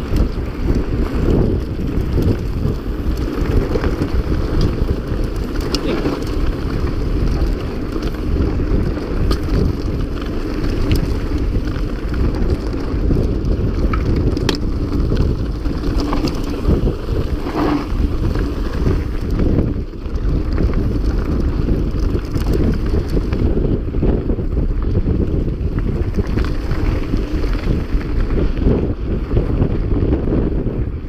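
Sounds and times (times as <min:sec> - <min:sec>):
bike clicks and knocks: 0:00.0 - 0:29.5
bike rolling over rough ground: 0:00.0 - 0:31.0
wind on microphone: 0:00.0 - 0:31.0.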